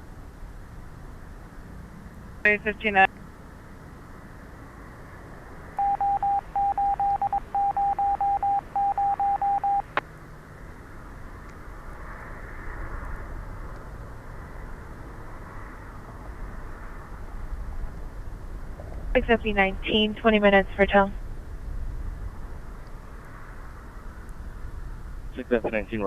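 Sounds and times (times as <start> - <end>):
scanner radio short beeps: 5.8 - 10.0
radio channel hiss: 25.4 - 26.0.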